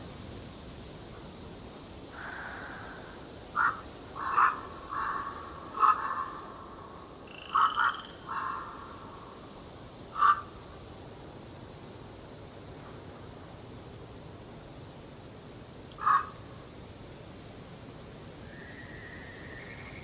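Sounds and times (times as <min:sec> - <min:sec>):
harsh bird calls: 0:02.2 - 0:09.3
raspy bird calls: 0:02.2 - 0:09.4, 0:10.1 - 0:10.6, 0:16.0 - 0:16.5
high bird whistle: 0:18.5 - 0:20.0.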